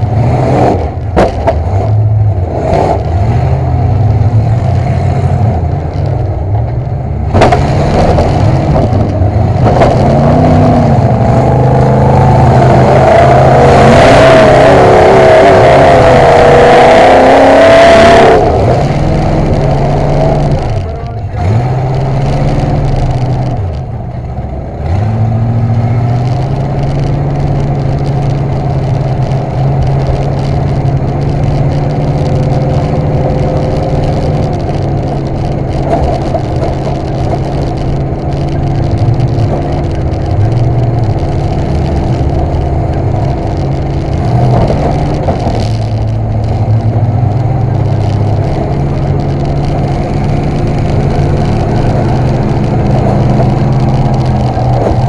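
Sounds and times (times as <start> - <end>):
car engine running loud: 0.0 - 55.0.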